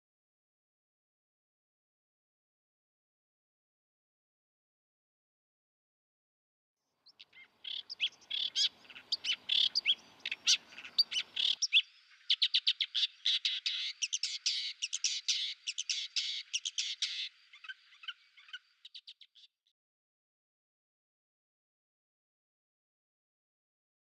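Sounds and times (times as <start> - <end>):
faint background hiss: 7.0 - 19.2
songbird trilling: 7.0 - 19.5.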